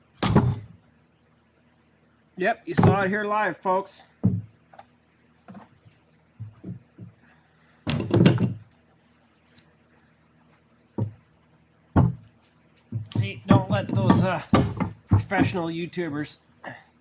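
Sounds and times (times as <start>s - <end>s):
metal parts knocking and clunking: 0.2s - 0.7s, 7.9s - 8.7s, 12.0s - 12.3s, 12.9s - 15.6s
parts clattering: 0.2s - 0.7s, 7.9s - 8.8s, 12.0s - 15.6s.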